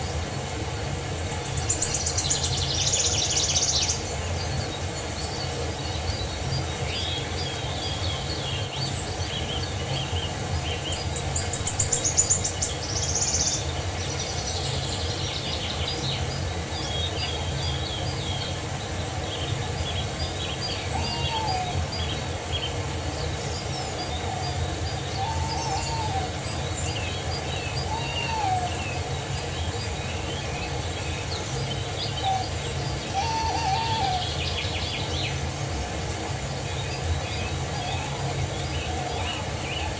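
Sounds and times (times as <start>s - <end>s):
birds singing and chirping: 0.0s - 39.9s
low background noise: 0.0s - 39.9s
low hooting calls: 20.8s - 22.0s, 24.3s - 26.7s, 27.7s - 29.3s, 32.2s - 34.6s.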